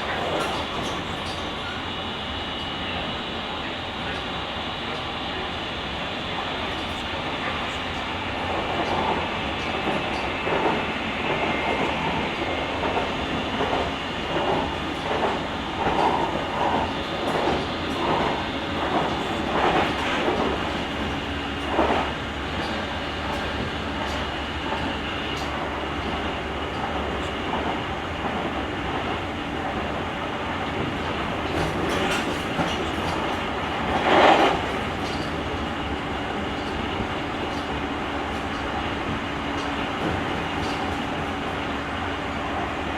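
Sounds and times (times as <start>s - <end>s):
train clatter: 0.0s - 42.9s
train running noise: 0.0s - 42.9s
train wheels clacking over rail joints: 8.5s - 29.8s, 30.6s - 41.4s.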